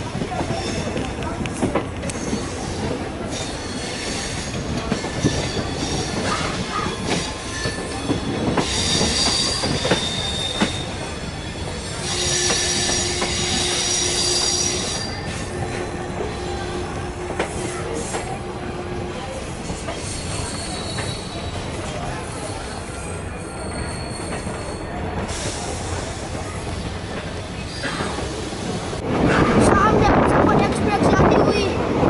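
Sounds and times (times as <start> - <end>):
rumble of wheels on rail: 0.0 - 32.0
wheels squealing: 2.1 - 26.0.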